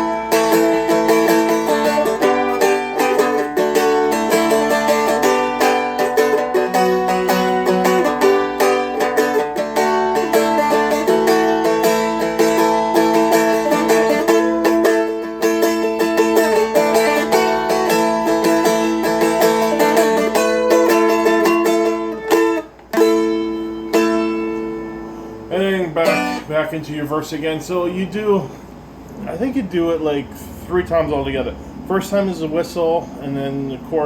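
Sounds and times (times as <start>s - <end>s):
strummed string instrument: 0.0s - 27.2s.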